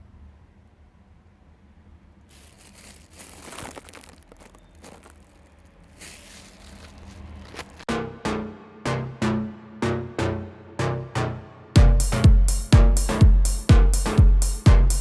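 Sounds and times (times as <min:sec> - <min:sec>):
crinkling handling noise: 0:02.3 - 0:07.9.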